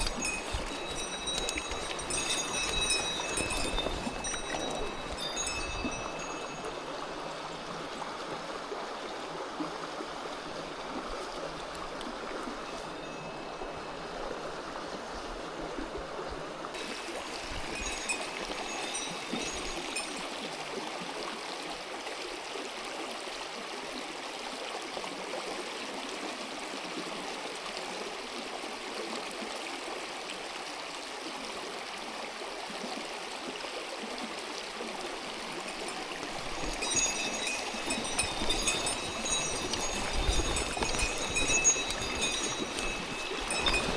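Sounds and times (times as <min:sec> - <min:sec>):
stream rushing over rocks: 0:00.0 - 0:43.9.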